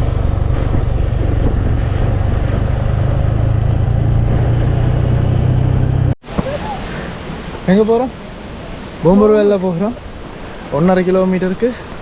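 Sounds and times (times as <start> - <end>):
vehicle engine and road noise: 0.0 - 6.8.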